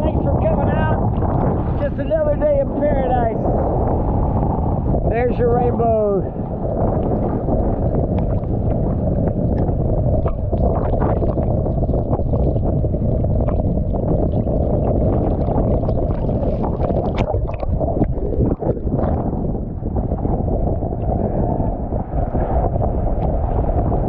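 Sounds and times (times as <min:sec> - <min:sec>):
wind buffeting microphone: 0:00.0 - 0:24.0
water sloshing and splashing: 0:06.2 - 0:23.8.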